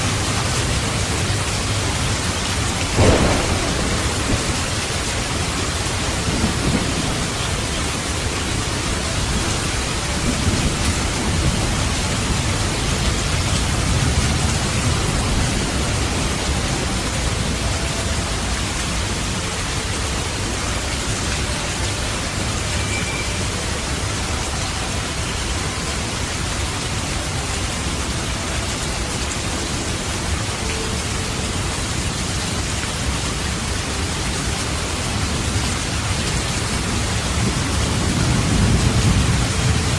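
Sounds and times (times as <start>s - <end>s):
heavy rain hissing: 0.0s - 39.9s
thunder rumbling: 0.2s - 17.7s.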